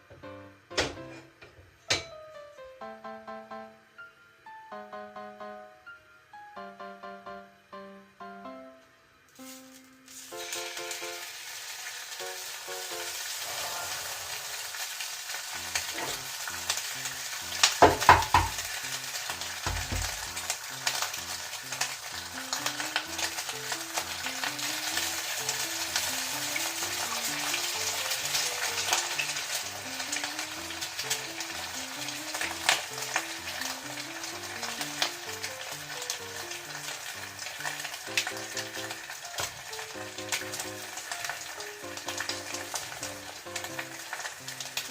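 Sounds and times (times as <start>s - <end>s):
oil sizzling in frying pan: 9.3s - 44.9s.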